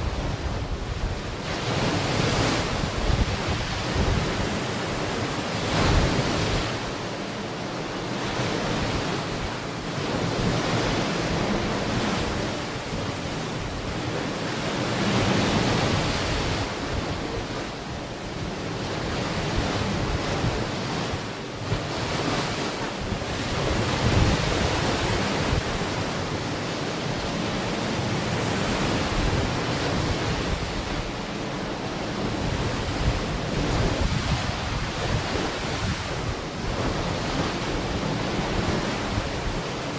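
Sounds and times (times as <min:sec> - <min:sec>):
wind rumbling on microphone: 0:00.0 - 0:07.1, 0:08.2 - 0:39.9
ocean waves breaking on beach: 0:00.0 - 0:39.9.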